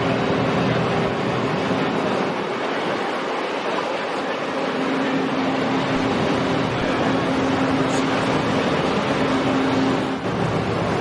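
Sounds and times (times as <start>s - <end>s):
boat engines running: 0.0s - 11.0s.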